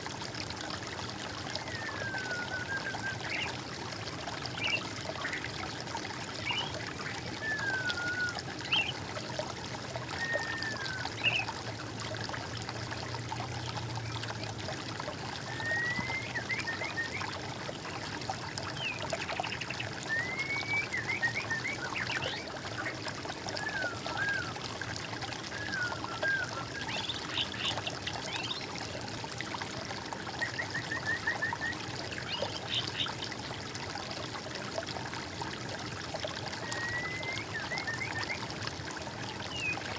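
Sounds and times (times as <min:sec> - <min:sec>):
water trickling and pouring: 0:00.0 - 0:39.9
birds singing: 0:06.4 - 0:06.8, 0:07.4 - 0:09.0, 0:10.2 - 0:11.5, 0:25.5 - 0:28.7, 0:36.6 - 0:38.4.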